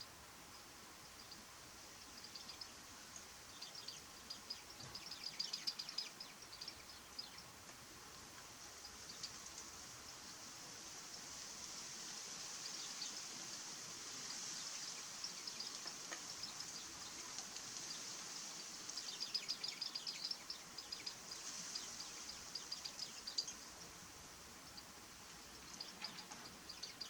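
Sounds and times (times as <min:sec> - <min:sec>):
faint high hiss: 0:00.0 - 0:27.0.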